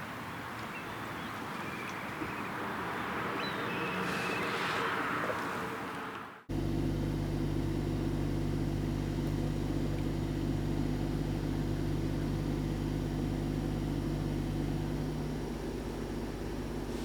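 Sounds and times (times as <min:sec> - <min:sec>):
car engine running steadily: 0:06.5 - 0:17.0.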